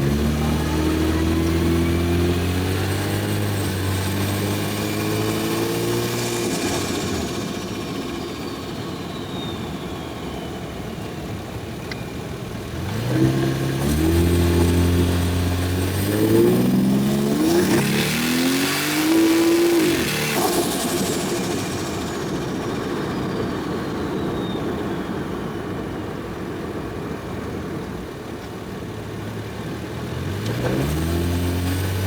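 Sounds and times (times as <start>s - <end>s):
intake and turbo hiss: 0.0s - 11.3s, 12.6s - 24.4s
high turbo whistle: 0.0s - 11.4s, 13.8s - 25.6s
car engine accelerating hard: 0.0s - 11.8s, 12.4s - 24.7s, 28.7s - 32.0s.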